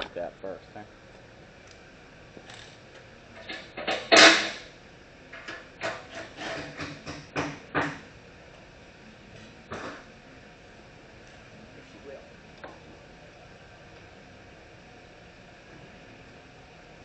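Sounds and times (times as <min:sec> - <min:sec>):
metal knocks and clatter: 0:05.4 - 0:08.0.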